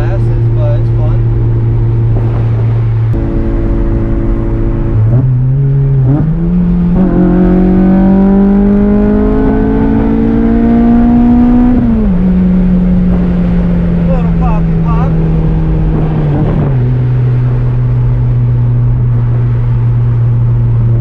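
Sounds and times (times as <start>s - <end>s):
road and tyre noise: 0.0s - 21.0s.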